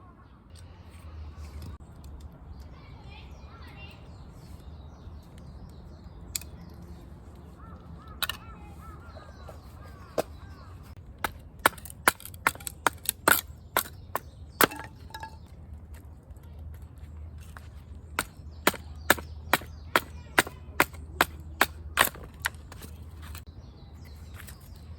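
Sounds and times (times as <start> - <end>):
firewood being chopped: 11.1 - 15.5, 17.6 - 23.5.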